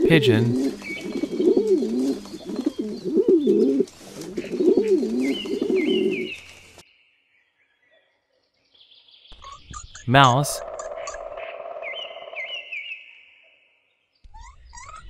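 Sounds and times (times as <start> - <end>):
pigeon cooing: 0.0 - 6.4.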